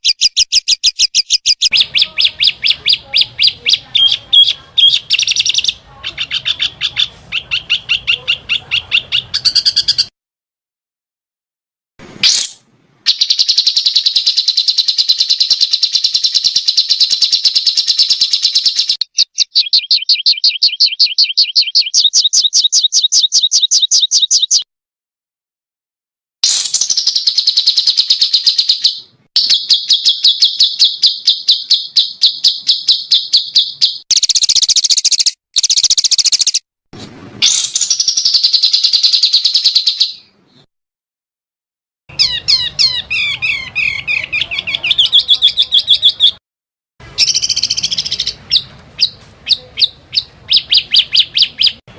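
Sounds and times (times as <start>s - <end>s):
songbird trilling: 0.0s - 10.1s, 13.1s - 24.6s, 26.5s - 36.6s, 42.1s - 46.4s, 47.2s - 51.8s.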